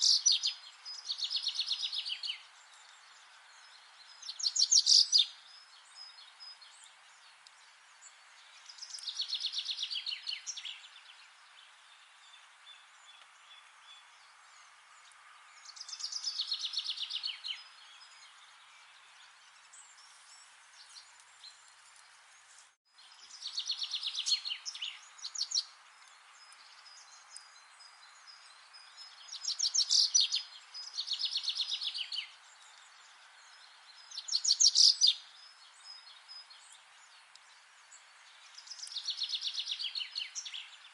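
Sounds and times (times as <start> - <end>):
faint steady hiss: 0.0 - 40.9.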